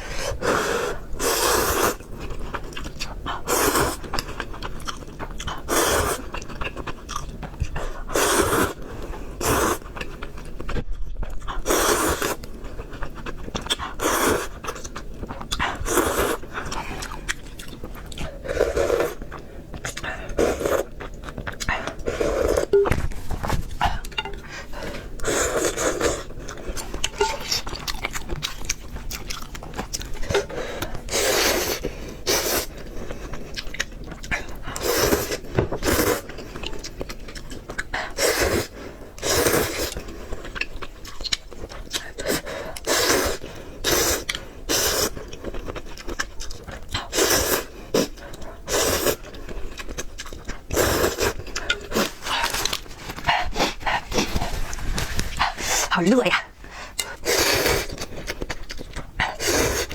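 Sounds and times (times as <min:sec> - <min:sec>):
person slurping noodles: 0:00.0 - 0:02.2, 0:03.4 - 0:04.2, 0:05.6 - 0:06.5, 0:07.9 - 0:09.9, 0:11.6 - 0:12.4, 0:13.7 - 0:14.8, 0:15.6 - 0:17.2, 0:18.3 - 0:19.3, 0:19.9 - 0:21.0, 0:21.7 - 0:22.8, 0:23.9 - 0:28.2, 0:30.2 - 0:32.9, 0:34.8 - 0:36.8, 0:38.1 - 0:40.0, 0:42.2 - 0:45.2, 0:47.0 - 0:49.3, 0:50.7 - 0:56.0, 0:57.1 - 0:58.2, 0:59.3 - 0:59.9.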